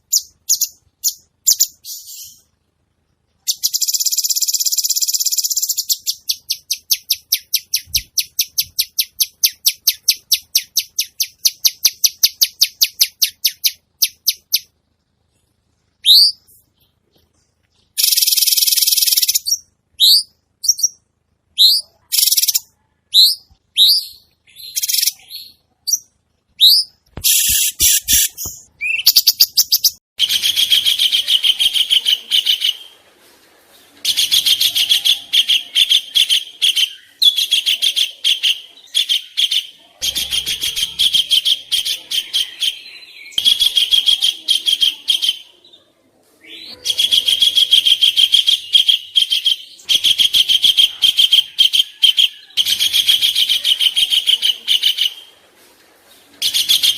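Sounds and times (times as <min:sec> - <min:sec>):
downward-sweeping bird chirps: 0:16.0 - 0:33.0.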